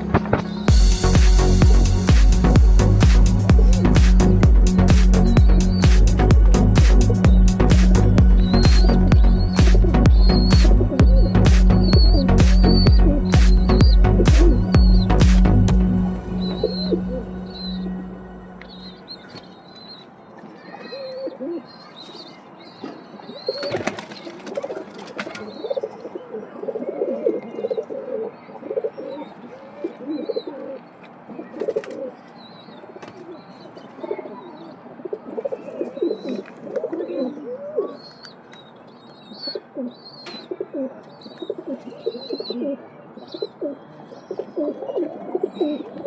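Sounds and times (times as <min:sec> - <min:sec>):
pigeons cooing: 0:06.5 - 0:15.3, 0:23.0 - 0:32.2, 0:33.0 - 0:38.3, 0:39.4 - 0:46.0.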